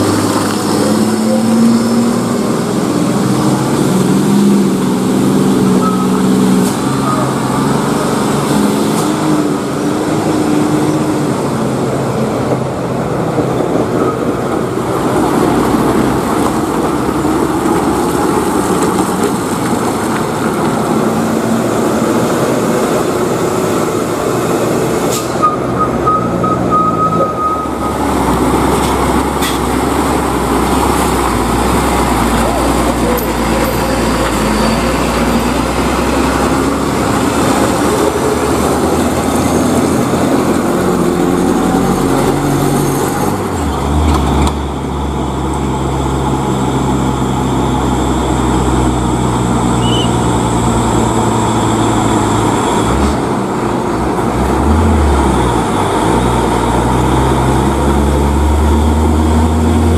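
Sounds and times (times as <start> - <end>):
road noise: 0.0 - 59.9
trucks diesel engines passing: 0.0 - 59.9.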